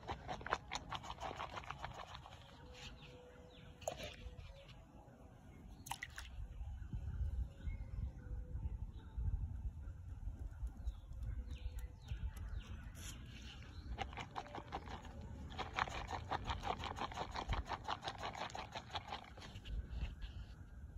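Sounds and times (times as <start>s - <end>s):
wind rumble on microphone: 5.8s - 20.9s
birds chirping: 10.6s - 15.2s.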